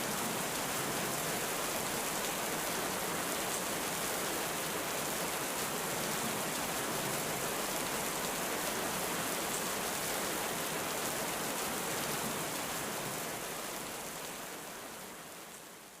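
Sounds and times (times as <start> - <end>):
heavy rain falling: 0.0 - 14.8.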